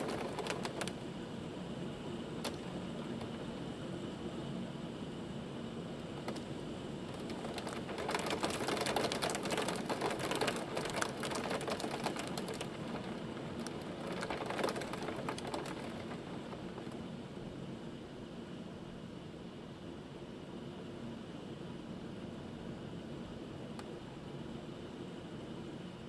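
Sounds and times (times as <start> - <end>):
hailstones rattling on hard surface: 0.0 - 1.0, 7.1 - 17.0.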